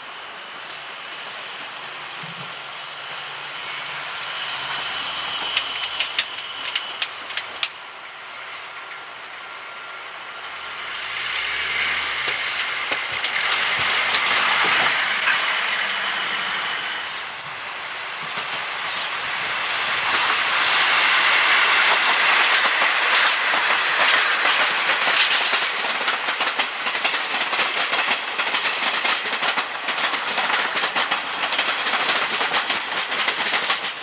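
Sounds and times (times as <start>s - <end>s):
train running on rails: 0.0s - 34.0s
wheels clicking over rail joints: 5.4s - 7.8s, 11.2s - 15.6s, 21.4s - 34.0s.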